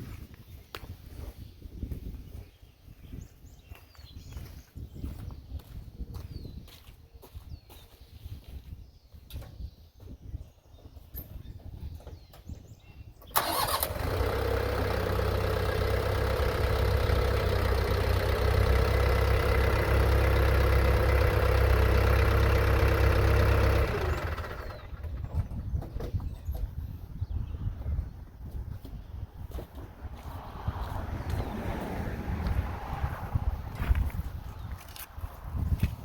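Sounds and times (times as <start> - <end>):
tractor engine running: 13.3 - 27.0.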